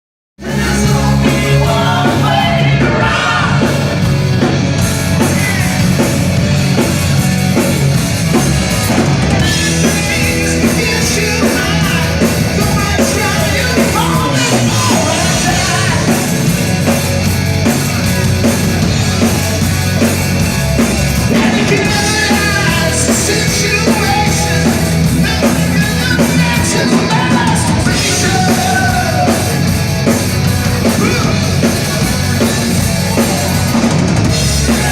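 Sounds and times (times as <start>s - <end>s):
person singing or yelling: 0.4s - 3.9s, 9.5s - 16.3s, 21.3s - 29.7s, 30.8s - 32.0s
hard rock band playing: 0.4s - 34.9s.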